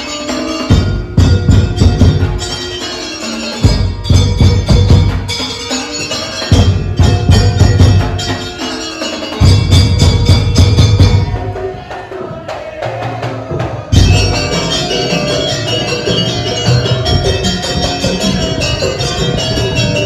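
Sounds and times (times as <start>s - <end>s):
percussion ensemble drums: 0.0s - 20.0s
heavy booming bass: 13.9s - 15.0s.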